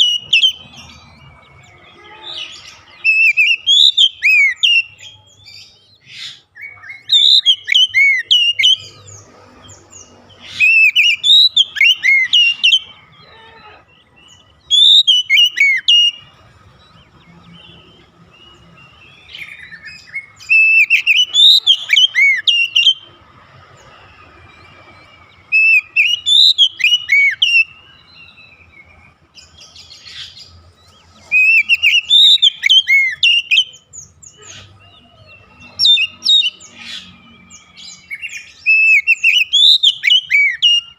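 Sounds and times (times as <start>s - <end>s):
bird singing whistled phrases: 2.1s - 9.0s, 10.5s - 12.9s, 14.3s - 16.2s, 17.5s - 23.1s, 25.5s - 28.7s, 31.3s - 36.8s, 37.8s - 40.9s.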